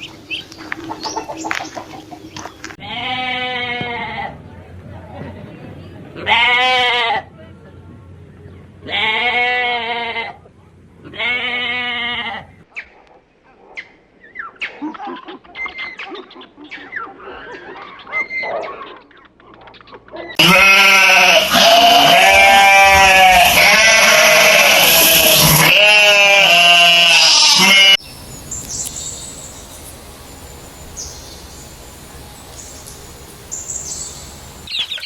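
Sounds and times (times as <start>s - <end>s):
animals bleating: 2.8s - 4.4s, 6.2s - 7.3s, 8.8s - 12.6s, 20.4s - 28.0s.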